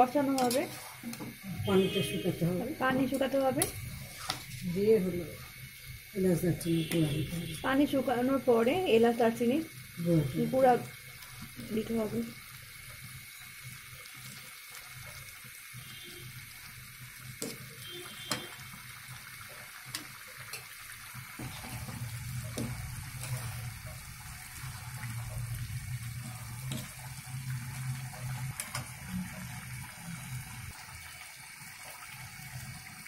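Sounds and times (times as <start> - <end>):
curry sizzling and bubbling: 0.0 - 33.0
metal spatula scraping pan: 0.3 - 1.1.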